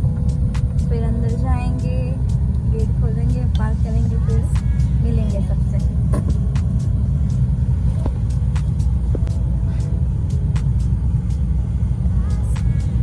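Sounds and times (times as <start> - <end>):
car engine rumble inside cabin: 0.0 - 13.0.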